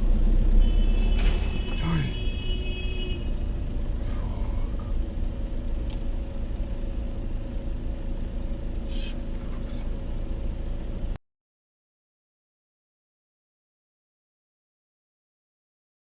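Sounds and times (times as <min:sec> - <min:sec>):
vehicle driving rumble: 0:00.0 - 0:11.2.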